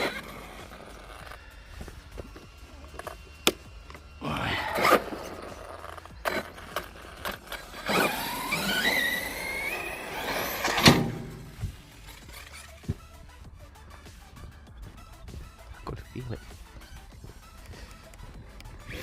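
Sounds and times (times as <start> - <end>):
tyres scrabbling on concrete: 0.0 - 13.2
electric motor whining: 0.0 - 15.7, 16.5 - 19.0.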